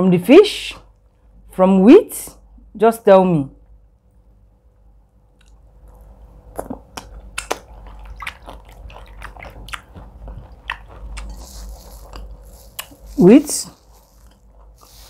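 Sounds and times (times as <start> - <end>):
chewing clicks and smacks: 5.3 - 13.1.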